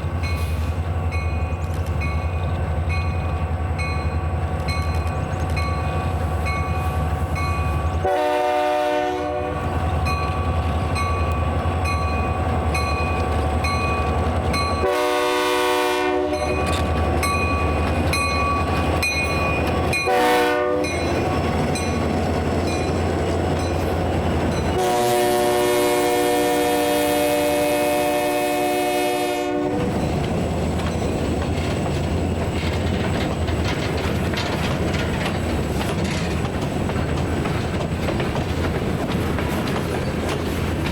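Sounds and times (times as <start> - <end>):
passing train rumble: 0.0 - 40.9
locomotive air horn blasts: 7.9 - 9.7, 14.8 - 16.7, 20.0 - 21.1, 24.8 - 30.0
bell ringing: 16.4 - 20.1.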